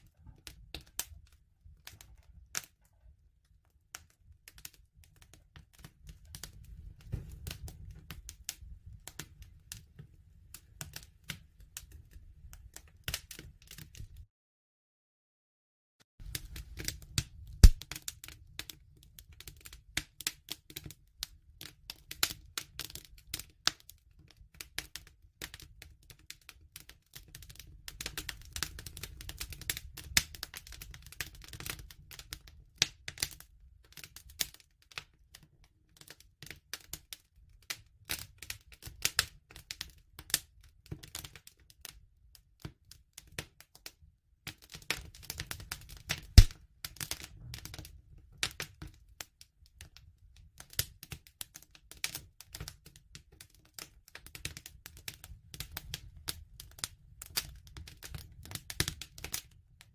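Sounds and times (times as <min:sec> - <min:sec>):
campfire crackling and popping: 0:00.0 - 0:03.0, 0:03.9 - 0:14.2, 0:16.2 - 0:42.0, 0:44.5 - 0:49.0, 0:50.6 - 0:59.6
low rumble of flame: 0:00.0 - 0:14.2, 0:16.2 - 0:20.0, 0:45.6 - 0:46.5.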